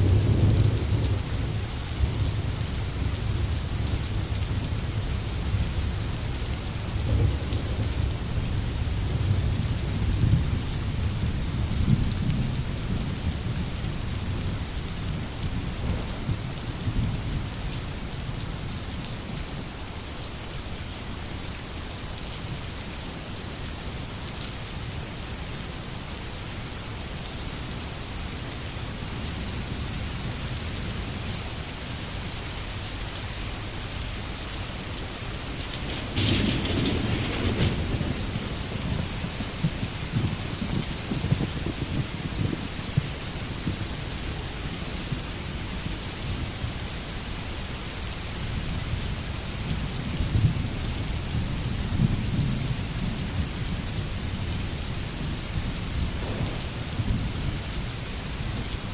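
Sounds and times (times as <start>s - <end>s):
rolling thunder: 0.0s - 17.6s, 35.0s - 44.1s, 50.2s - 58.8s
rain falling in a forest: 0.0s - 58.9s.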